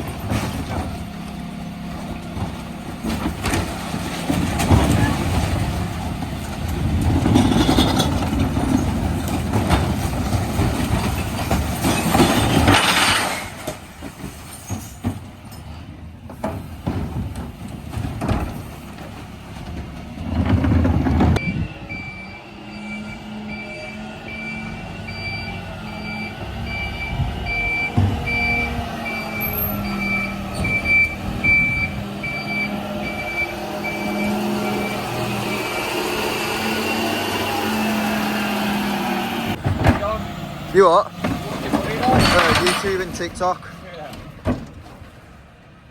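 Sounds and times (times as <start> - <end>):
diesel engine running: 0.0 - 12.8, 15.2 - 45.9
refuse truck mechanical noise: 0.0 - 45.9
reversing alarm beeps: 21.4 - 36.1.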